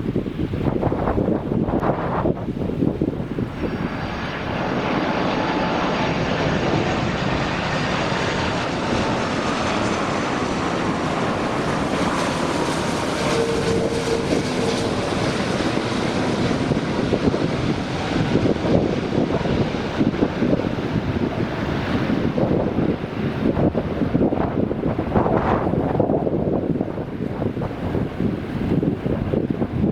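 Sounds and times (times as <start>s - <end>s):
jet engines rushing: 0.0s - 29.9s
faint high engine whine: 1.1s - 23.3s.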